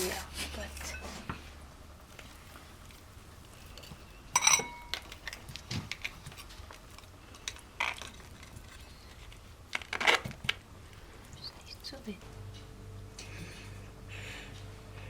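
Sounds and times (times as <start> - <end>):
ringing clink: 4.4 - 5.0.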